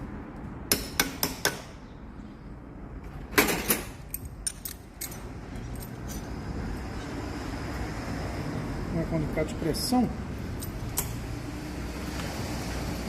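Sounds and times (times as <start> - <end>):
metal tools clinking and rattling: 3.4 - 6.4.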